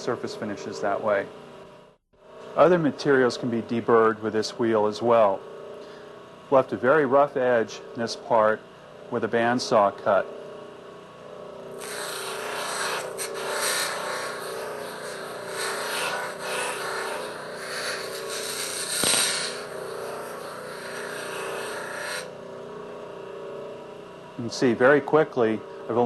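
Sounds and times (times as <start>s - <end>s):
motor humming: 10.3s - 23.9s
grinding wheel rasping on metal: 11.8s - 22.3s.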